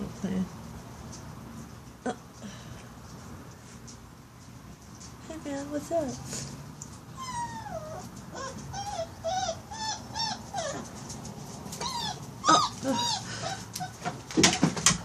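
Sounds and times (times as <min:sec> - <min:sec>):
puppy whining and whimpering: 0:07.1 - 0:14.2
sharp knocks or rustles: 0:14.0 - 0:15.0.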